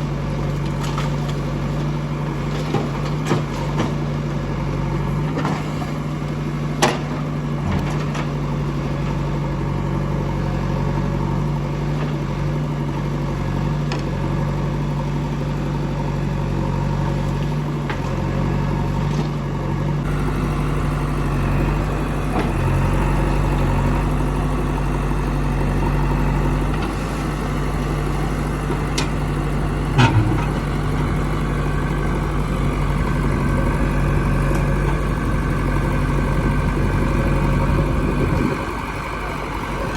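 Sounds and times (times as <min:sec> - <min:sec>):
diesel engine running: 0:00.0 - 0:39.9
metal clank: 0:29.9 - 0:30.6.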